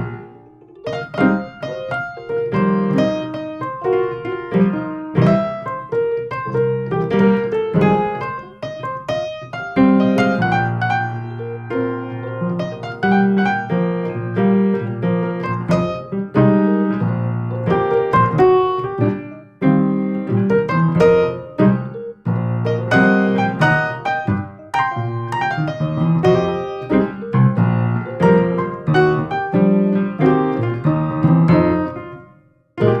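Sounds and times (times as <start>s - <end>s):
piano music: 0.0s - 33.0s.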